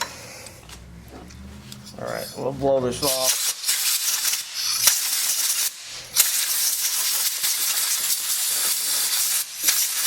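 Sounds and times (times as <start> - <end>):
compressed air blow gun blasting: 3.0 - 10.0.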